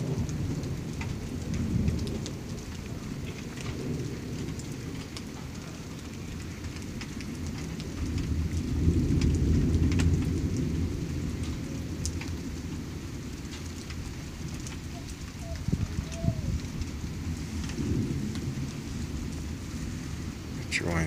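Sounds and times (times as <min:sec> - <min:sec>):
rain falling: 0:00.0 - 0:21.0
raindrops ticking: 0:00.0 - 0:21.0
thunder rumbling: 0:00.0 - 0:21.0.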